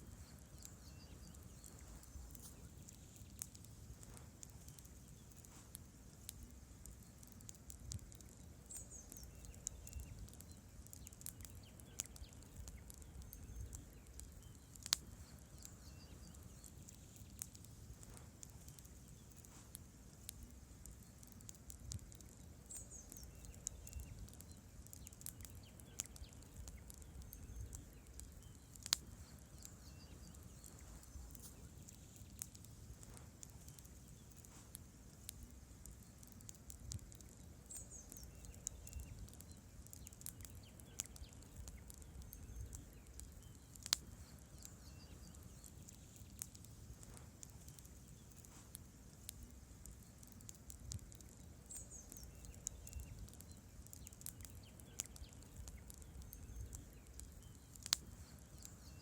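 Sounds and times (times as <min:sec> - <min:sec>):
burning logs crackling and popping: 0:00.0 - 0:59.0
low rumble of flames: 0:00.0 - 0:59.0.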